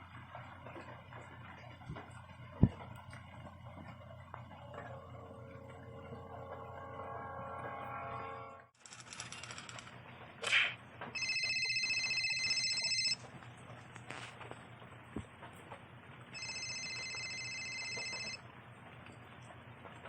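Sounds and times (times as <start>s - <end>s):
telephone ringing: 11.1s - 13.3s, 16.3s - 18.4s.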